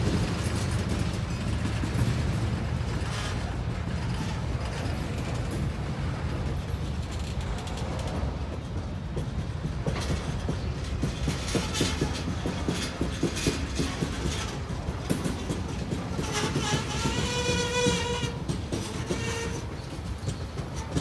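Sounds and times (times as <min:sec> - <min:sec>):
train wheels rumbling on rail: 0:00.0 - 0:21.0
wheels clacking over track: 0:00.0 - 0:21.0.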